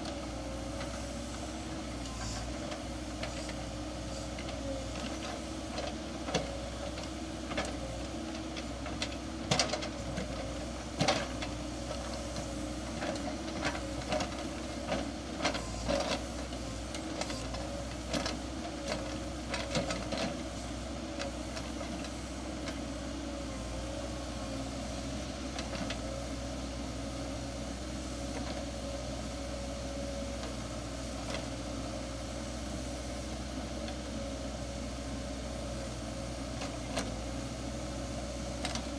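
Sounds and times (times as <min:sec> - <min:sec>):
excavator engine running: 0:00.0 - 0:38.9.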